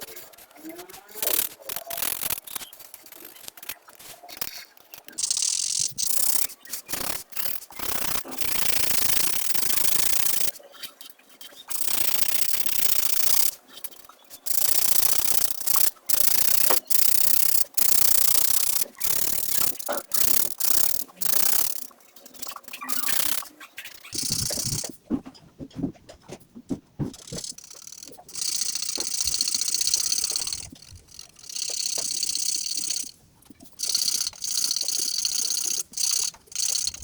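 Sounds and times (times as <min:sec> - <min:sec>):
pencil rubbing on paper: 0:24.2 - 0:25.0.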